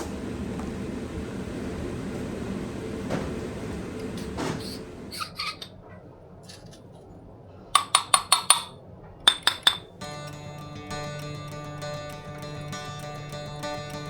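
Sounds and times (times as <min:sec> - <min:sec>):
plucked-string background music: 0:10.0 - 0:14.0.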